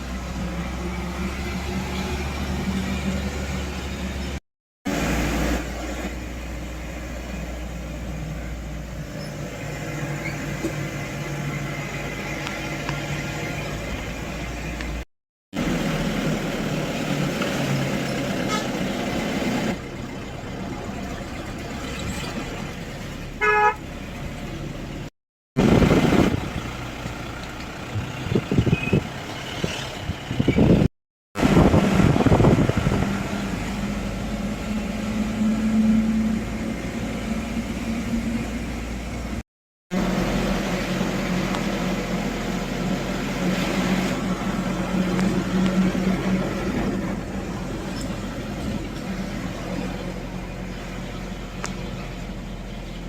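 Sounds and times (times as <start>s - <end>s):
vehicle and road noise: 0.0s - 53.0s
short horn toot: 23.4s - 23.8s.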